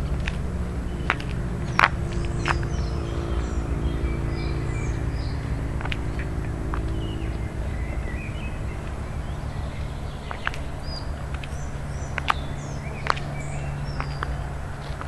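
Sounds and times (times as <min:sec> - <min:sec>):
low rumble: 0:00.0 - 0:15.0
small birds chirping: 0:00.0 - 0:15.0.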